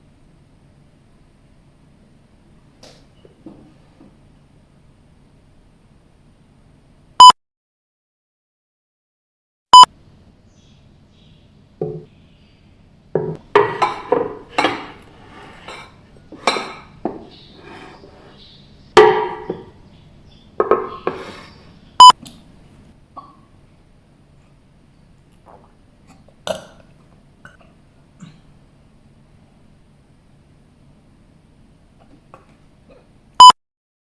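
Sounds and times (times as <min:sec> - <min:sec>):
short electronic beeps: 0:07.2 - 0:07.4, 0:09.7 - 0:09.9, 0:22.0 - 0:22.2, 0:33.4 - 0:33.6.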